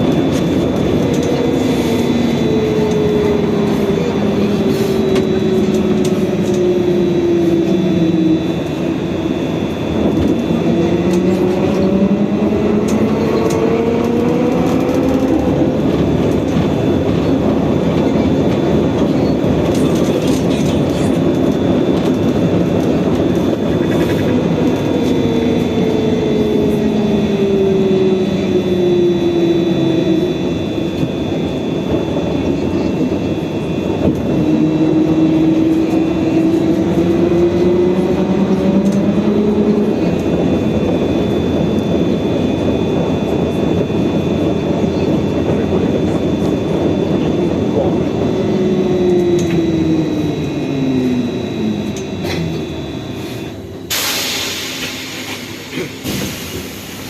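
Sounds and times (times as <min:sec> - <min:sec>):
road and body rumble: 0:00.0 - 0:57.0
electric motor whine: 0:24.3 - 0:53.9.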